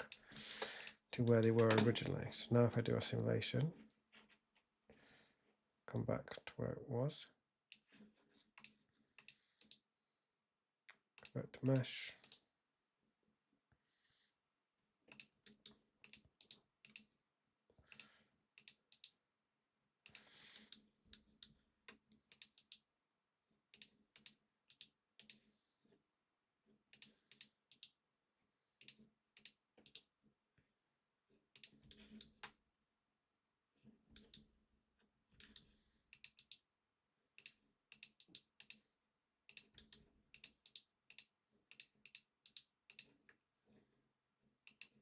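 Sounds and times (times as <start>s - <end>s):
computer mouse and keyboard clicking: 0.0s - 2.1s, 15.1s - 17.1s, 17.9s - 19.2s, 20.0s - 22.9s, 23.7s - 25.5s, 28.8s - 30.1s, 31.5s - 32.6s, 34.1s - 34.5s, 35.3s - 36.6s, 37.4s - 38.9s, 39.5s - 43.2s, 44.6s - 45.0s.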